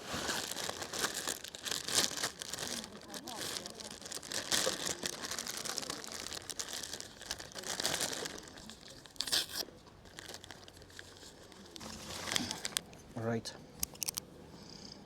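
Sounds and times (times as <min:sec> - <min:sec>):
food wrapper crinkling and tearing: 0:00.0 - 0:13.0, 0:13.8 - 0:14.2.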